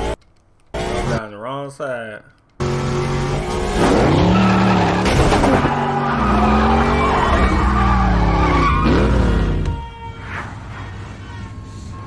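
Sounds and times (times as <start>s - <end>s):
car engines revving: 0.0s - 1.2s, 2.6s - 9.7s
tyres skidding and squealing: 2.6s - 12.0s.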